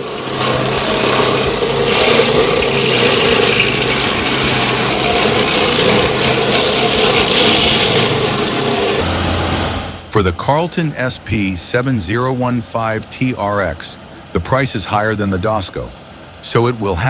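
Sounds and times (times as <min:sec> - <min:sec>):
stump grinder grinding wood: 0:00.0 - 0:10.1.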